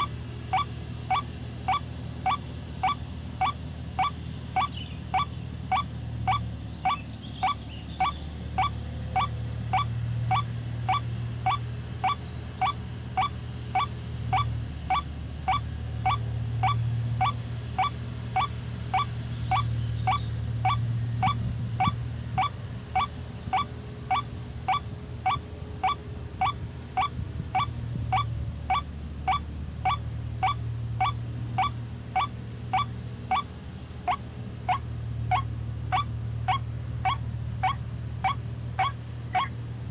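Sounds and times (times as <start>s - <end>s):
bird honking call: 0.0s - 39.9s.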